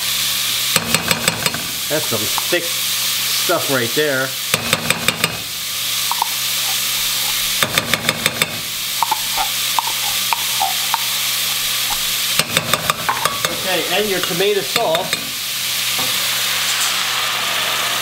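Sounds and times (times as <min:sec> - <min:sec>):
food sizzling in a pot: 0:00.0 - 0:18.0
metal spoon clinking: 0:06.1 - 0:13.6.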